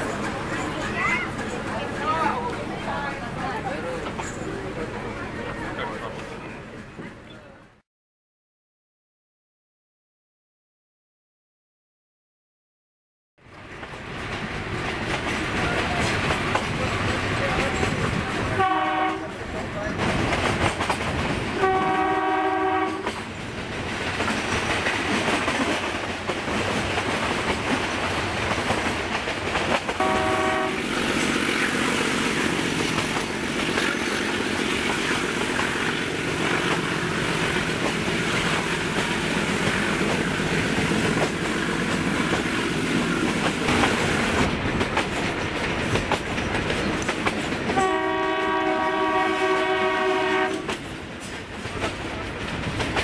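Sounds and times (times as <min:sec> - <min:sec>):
wheels clattering on track: 0:00.0 - 0:04.8, 0:13.7 - 0:18.6, 0:22.9 - 0:47.9, 0:50.6 - 0:53.0
diesel locomotive horn: 0:18.5 - 0:19.4, 0:21.6 - 0:23.2, 0:30.0 - 0:30.9, 0:47.8 - 0:50.8.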